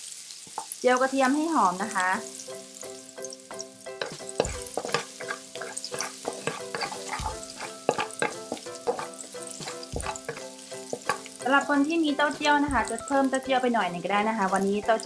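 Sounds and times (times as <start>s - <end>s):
garlic sizzling in oil: 0.0s - 15.0s
soft background music: 1.0s - 15.0s
metal spatula scraping a wok: 3.9s - 11.4s.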